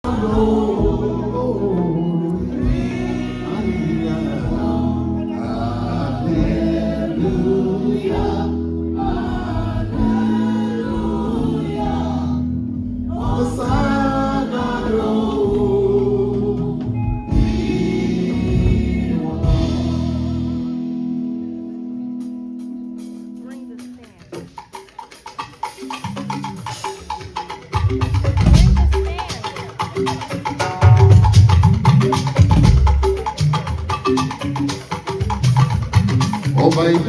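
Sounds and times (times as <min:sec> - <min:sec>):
gospel singing: 0:00.0 - 0:21.4
instrumental accompaniment: 0:00.0 - 0:37.0.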